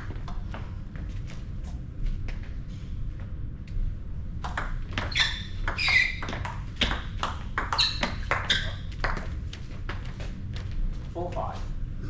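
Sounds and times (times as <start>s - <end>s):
shoes squeaking on floor: 4.9s - 7.0s, 7.6s - 9.2s.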